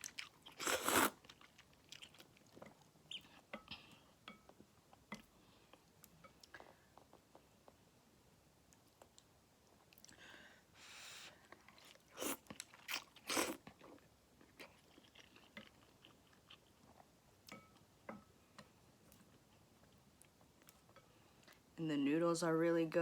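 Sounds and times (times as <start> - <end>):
mouth and eating sounds: 0.0 - 3.5, 11.6 - 17.1
person slurping noodles: 0.5 - 1.2, 12.1 - 13.6.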